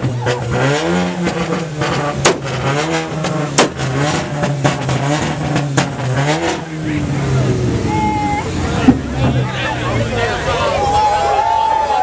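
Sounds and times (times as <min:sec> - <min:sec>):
exhaust pops: 0:00.0 - 0:07.5, 0:08.6 - 0:09.8
car engine revving: 0:00.0 - 0:11.4.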